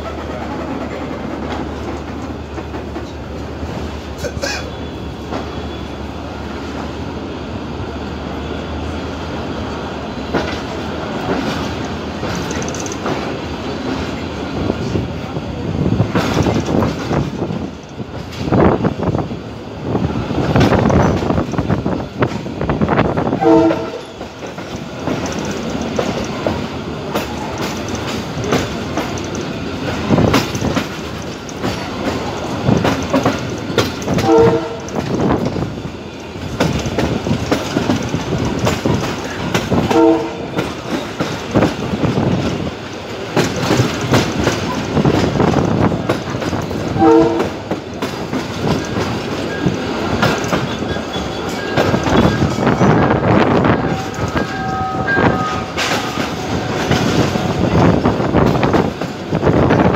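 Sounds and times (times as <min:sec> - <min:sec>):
train rumbling along tracks: 0:00.0 - 0:59.9
train horn blasts: 0:23.2 - 0:24.2, 0:34.2 - 0:35.0, 0:39.8 - 0:40.7, 0:47.0 - 0:47.6, 0:53.7 - 0:57.6.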